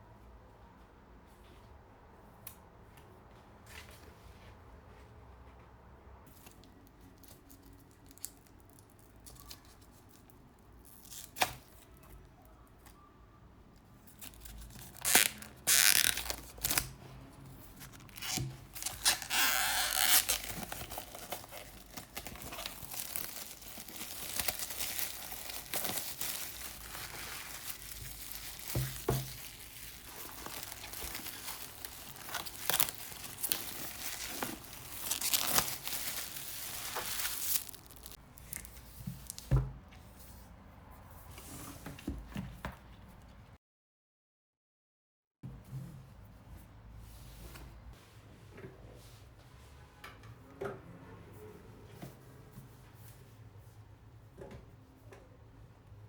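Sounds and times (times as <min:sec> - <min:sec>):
material tearing and rustling: 0:14.2 - 0:16.9, 0:17.8 - 0:39.4.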